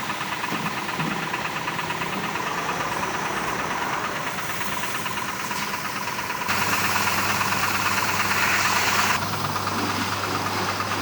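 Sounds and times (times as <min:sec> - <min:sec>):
pressure washer motor running: 0:00.0 - 0:11.0
hiss of spraying water: 0:02.2 - 0:11.0.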